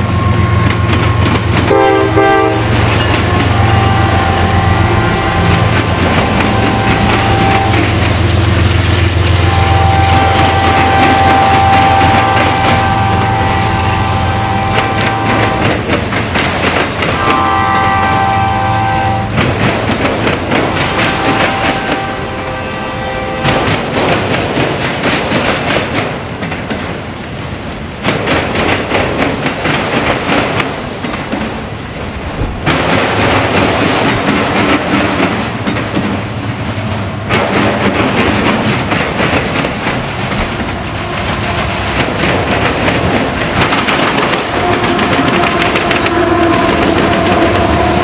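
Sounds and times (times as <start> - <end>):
train horn: 0.0 - 16.0, 17.0 - 23.9, 40.4 - 48.0
train rumbling past: 0.0 - 48.0
wheels clacking over rails: 0.0 - 48.0.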